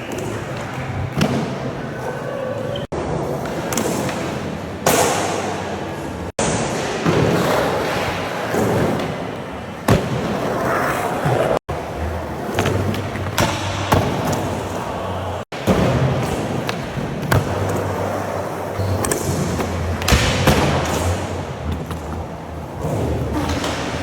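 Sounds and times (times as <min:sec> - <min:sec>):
skateboard wheels rolling: 0:06.8 - 0:24.0.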